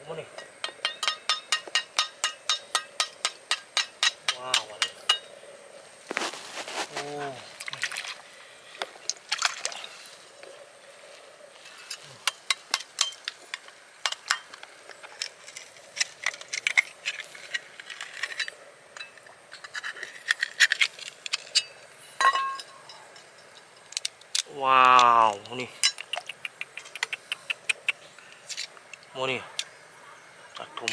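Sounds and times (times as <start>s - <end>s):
oyster shells clicking and clinking: 0.4s - 5.3s, 12.2s - 29.8s.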